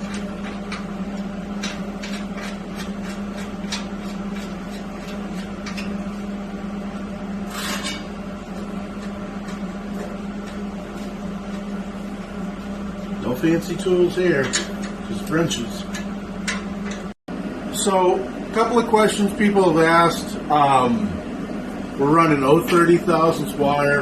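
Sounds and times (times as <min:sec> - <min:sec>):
steady low hum: 0:00.0 - 0:24.0
metal scraping: 0:07.4 - 0:11.7.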